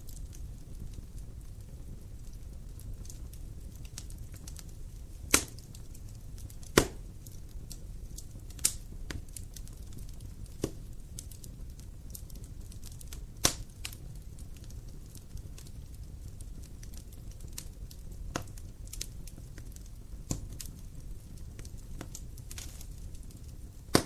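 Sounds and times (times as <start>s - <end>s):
fire crackling: 0.0s - 24.0s
wood fire rumbling: 0.0s - 24.0s
logs popping: 5.2s - 5.7s, 6.6s - 7.1s.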